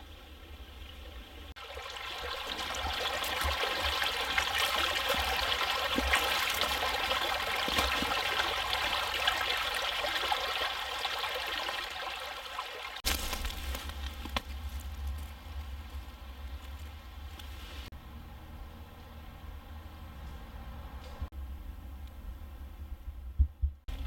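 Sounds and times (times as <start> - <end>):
creek running over stones: 0.0 - 17.9
small water splashes: 1.6 - 13.8.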